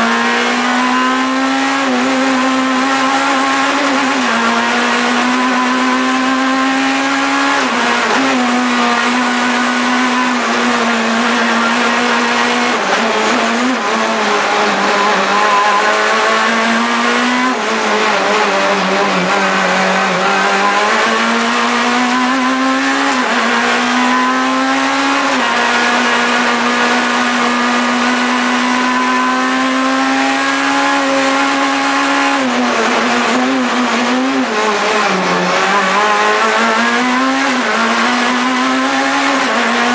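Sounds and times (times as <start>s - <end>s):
rally car engine at high revs: 0.0s - 39.9s.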